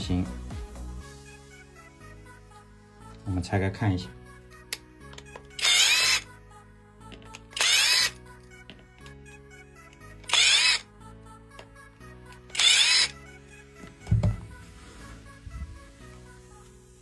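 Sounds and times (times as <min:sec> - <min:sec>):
faint background music: 0:00.0 - 0:17.0
power driver whining: 0:04.7 - 0:06.3, 0:07.1 - 0:08.2, 0:10.2 - 0:10.9, 0:12.4 - 0:13.2.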